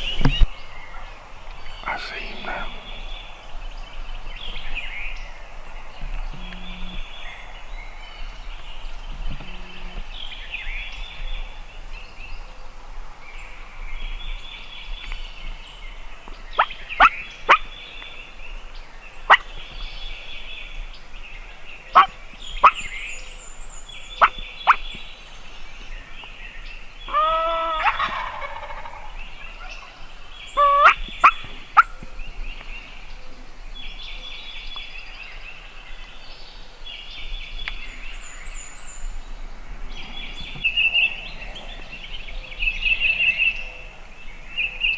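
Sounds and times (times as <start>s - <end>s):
songbirds singing: 0.0s - 44.9s
turkey gobbling: 22.0s - 22.8s, 27.1s - 29.1s, 30.6s - 31.9s
sharp turkey notes: 30.6s - 31.9s.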